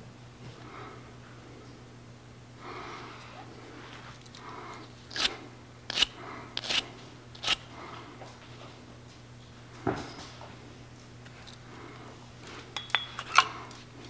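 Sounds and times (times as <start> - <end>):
faint steady hum: 0.0 - 14.0
sharp scrapes or clicks on fitting: 5.9 - 7.6.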